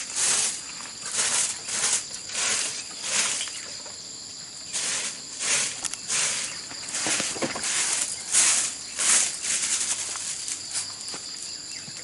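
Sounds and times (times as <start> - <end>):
hand tool rasping bamboo: 0.0 - 3.7, 4.7 - 10.4
faint insect drone: 0.0 - 12.0.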